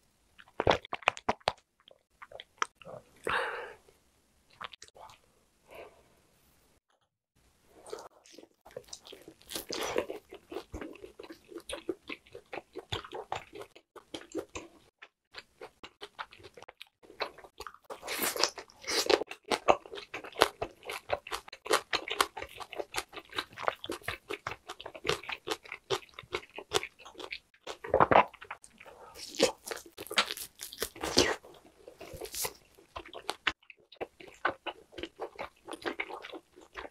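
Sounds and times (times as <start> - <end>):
person chewing meat: 7.9 - 36.9.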